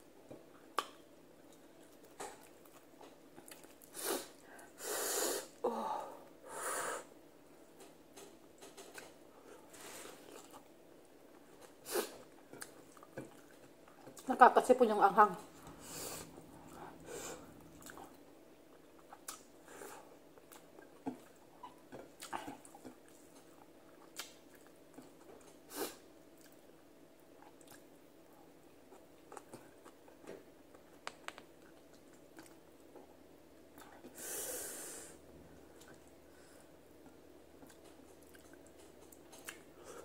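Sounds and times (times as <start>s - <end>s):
chewing clicks and lip smacks: 0.8s - 3.9s, 17.7s - 19.5s, 20.4s - 25.6s, 27.4s - 27.9s, 37.6s - 39.7s.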